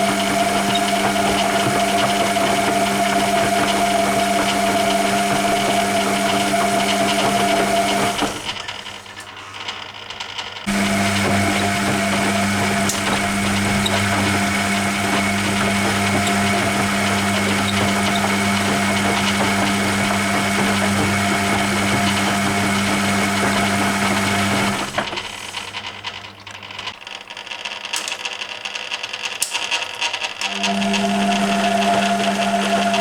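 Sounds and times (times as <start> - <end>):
wet laundry moving in drum: 0.0 - 8.7, 10.7 - 25.8
washing machine drum motor humming: 0.0 - 9.4, 10.6 - 27.0, 30.4 - 33.0.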